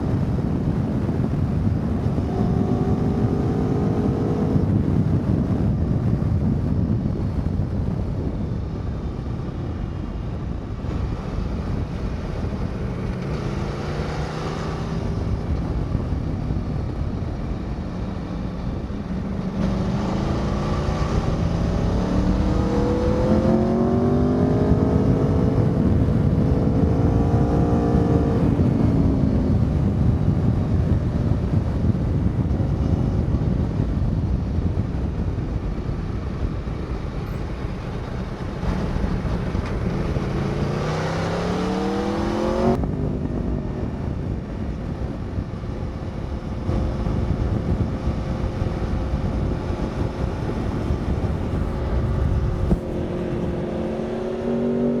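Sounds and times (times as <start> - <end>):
heavy wind rush: 0.0 - 55.0
motorcycle engine accelerating: 0.0 - 55.0.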